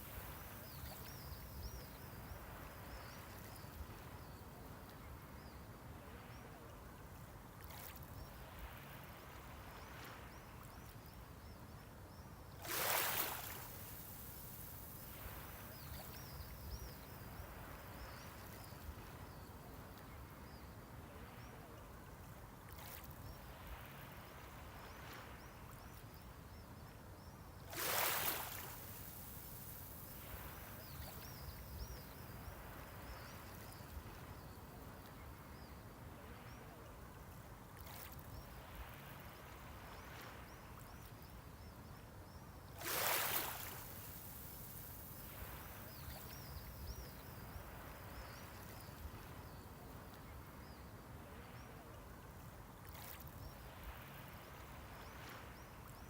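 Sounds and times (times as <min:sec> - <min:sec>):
small waves lapping on shore: 0:00.0 - 0:11.6, 0:12.5 - 0:56.0.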